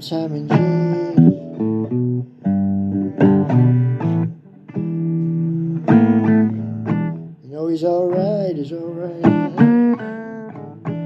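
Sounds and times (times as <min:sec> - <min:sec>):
blues guitar: 0:00.0 - 0:11.0.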